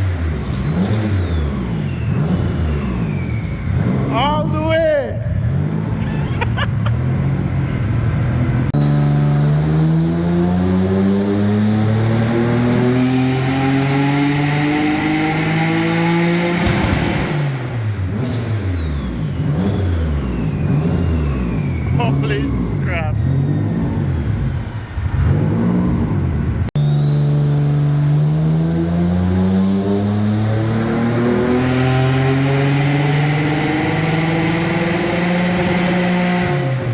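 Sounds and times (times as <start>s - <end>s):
car engine revving on a dyno: 0.0s - 4.1s, 8.2s - 21.9s, 22.5s - 36.9s
high turbo whine: 7.4s - 36.9s.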